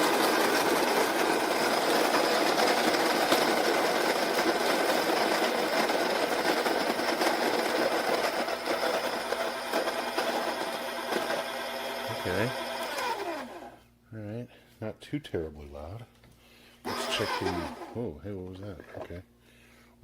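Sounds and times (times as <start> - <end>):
coffee grinder whirring: 0.0 - 13.8, 16.9 - 18.0.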